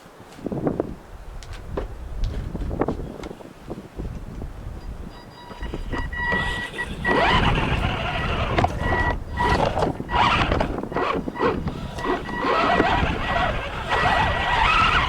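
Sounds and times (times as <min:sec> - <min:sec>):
electronic beep tone: 0:05.1 - 0:12.5
rc truck motor whine: 0:05.5 - 0:15.0.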